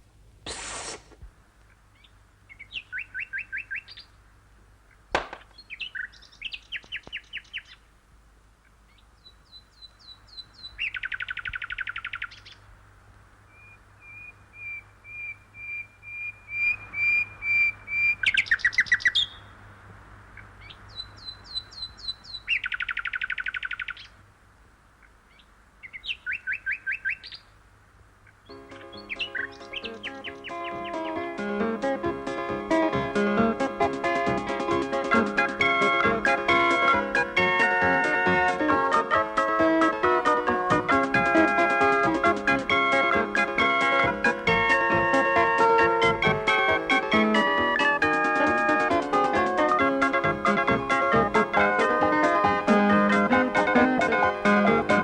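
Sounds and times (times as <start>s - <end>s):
small bird singing: 1.7s - 4.2s, 4.9s - 7.9s, 8.6s - 12.8s, 13.5s - 19.6s, 20.4s - 24.2s, 25.0s - 27.6s, 28.2s - 33.6s.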